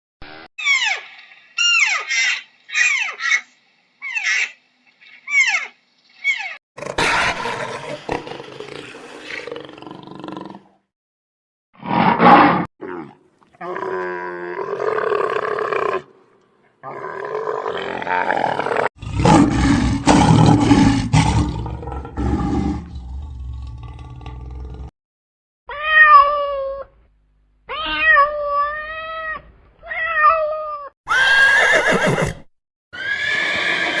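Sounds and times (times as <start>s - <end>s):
pitched animal calls bending: 0.6s - 6.6s.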